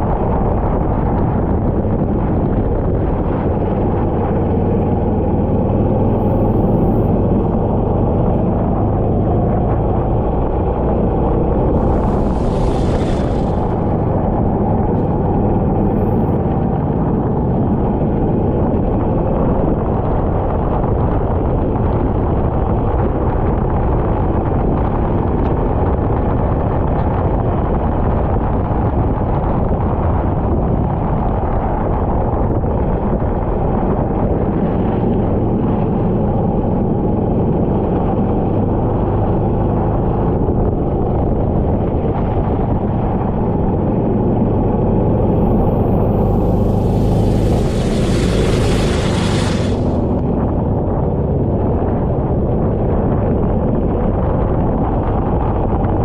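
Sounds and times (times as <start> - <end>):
go-kart engine running: 43.5 - 52.8.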